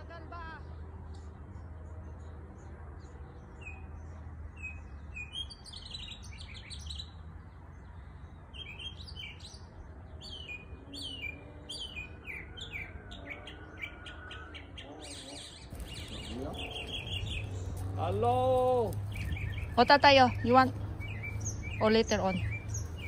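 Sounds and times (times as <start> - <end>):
small birds chirping: 0.0 - 23.0
low rumble: 15.7 - 23.0.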